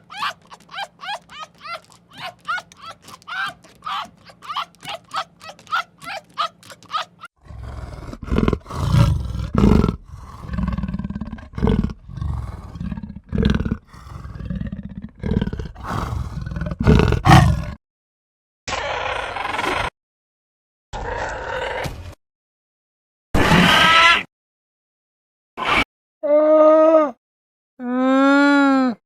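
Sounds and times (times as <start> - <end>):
low loud animal calls: 16.8 - 17.7.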